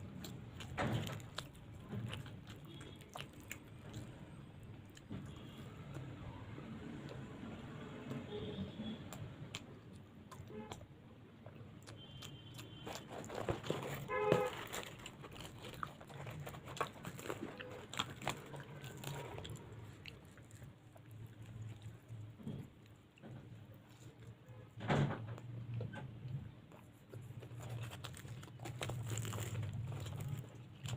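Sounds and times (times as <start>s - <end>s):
person chewing with mouth clicks: 0.0s - 7.4s, 9.0s - 24.5s.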